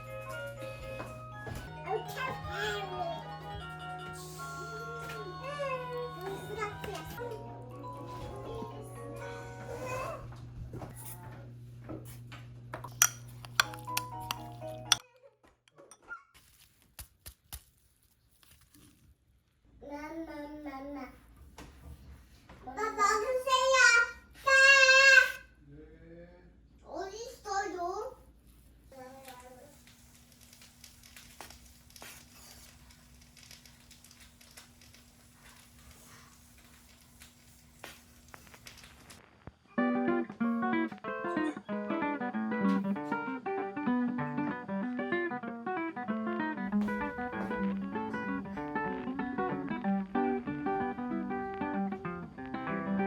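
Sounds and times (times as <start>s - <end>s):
background music: 0.0s - 10.2s, 39.8s - 53.0s
tableware clinking: 12.8s - 15.0s.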